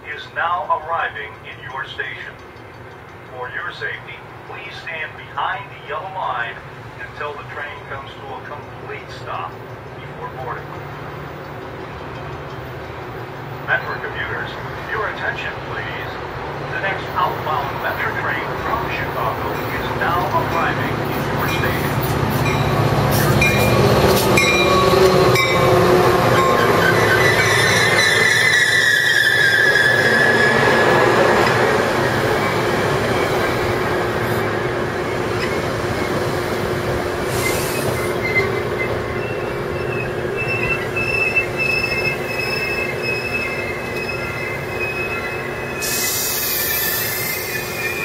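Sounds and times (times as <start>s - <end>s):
diesel locomotive passing: 0.0s - 48.0s
rumble of wheels on rail: 0.0s - 48.0s
high wheel squeals: 21.6s - 33.5s, 37.3s - 48.0s.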